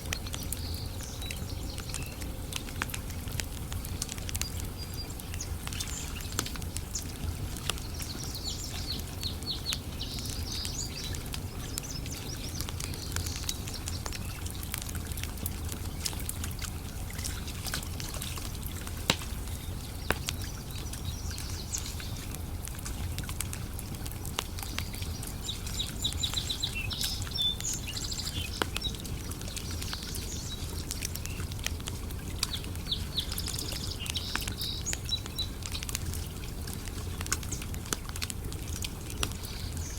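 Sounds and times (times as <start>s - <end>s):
birds chirping: 0.0s - 14.7s, 24.3s - 39.9s
campfire crackling and popping: 0.0s - 39.9s.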